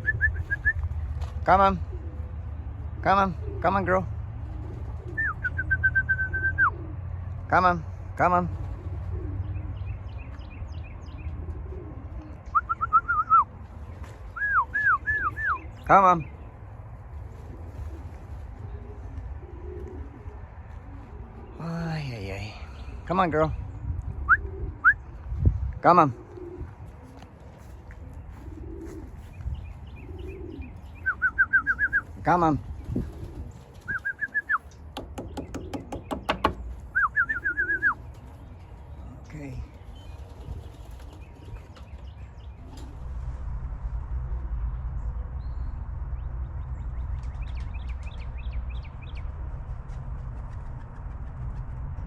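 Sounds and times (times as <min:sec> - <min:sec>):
pigeons cooing: 0:00.0 - 0:07.4, 0:08.0 - 0:10.4, 0:11.0 - 0:21.8, 0:22.4 - 0:25.4, 0:26.1 - 0:43.4
steady low rumble: 0:13.4 - 0:35.2, 0:36.6 - 0:52.0.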